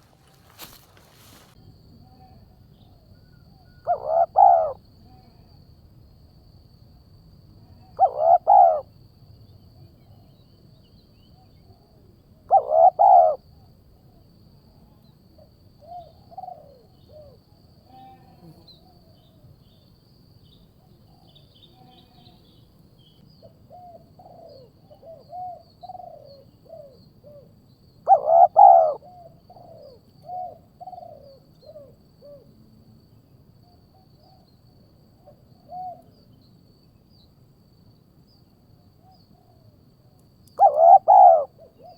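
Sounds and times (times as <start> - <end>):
bird calls: 0.0 - 1.6, 3.2 - 4.8, 8.0 - 8.8, 12.5 - 13.4, 28.1 - 31.9, 40.6 - 41.9.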